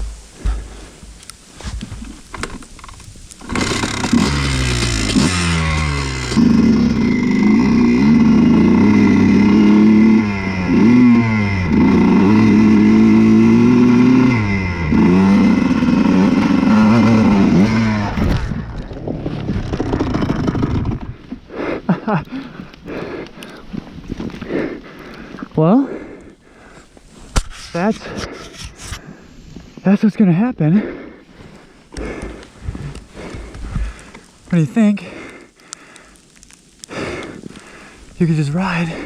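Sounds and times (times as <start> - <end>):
two-stroke motorcycle engine revving: 3.4 - 18.5, 19.5 - 21.1.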